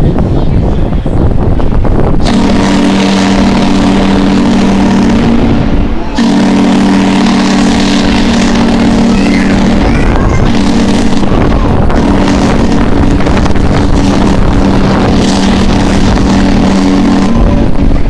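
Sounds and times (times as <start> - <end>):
wind on microphone: 0.0 - 18.0
steam locomotive whistle blasts: 2.2 - 9.2, 14.0 - 17.7.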